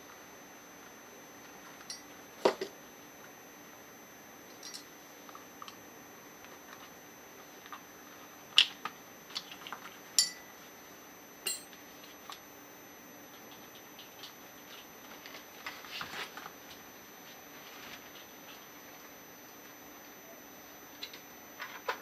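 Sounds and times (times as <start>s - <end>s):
metal parts clinking on workbench: 4.6s - 4.9s, 11.5s - 11.7s.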